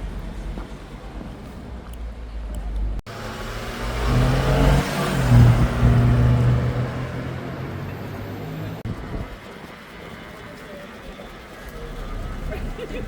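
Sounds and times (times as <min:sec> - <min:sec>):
car accelerating past: 0:03.1 - 0:08.9.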